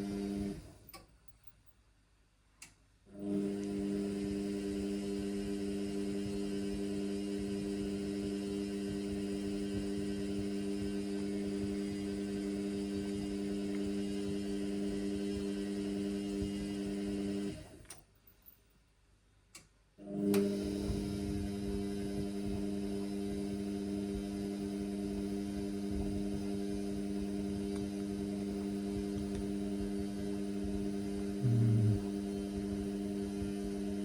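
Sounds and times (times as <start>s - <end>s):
washing machine humming: 3.2s - 17.7s.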